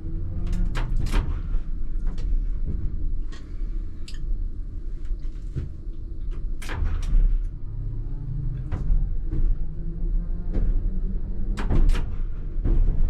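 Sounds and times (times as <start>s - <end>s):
tram rumble and motor hum: 0.0s - 13.0s.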